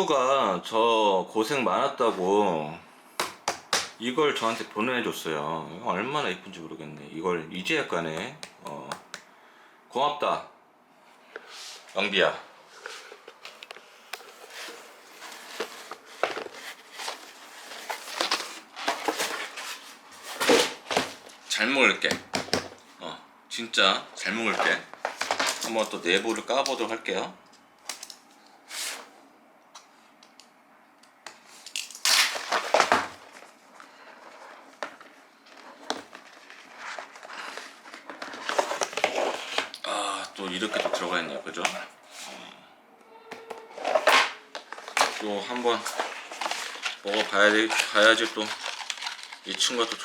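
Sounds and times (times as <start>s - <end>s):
packaging rustling: 13.3s - 21.5s, 24.5s - 26.9s, 31.6s - 39.8s, 43.8s - 50.0s.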